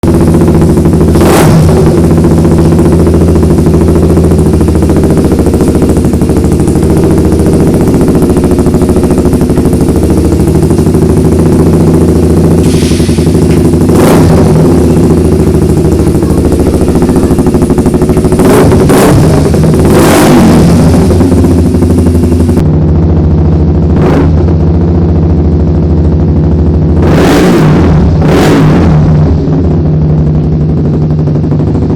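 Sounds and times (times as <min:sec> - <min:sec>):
engine throttle blips: 0:00.0 - 0:24.6
motorcycle engine idling: 0:00.0 - 0:31.9.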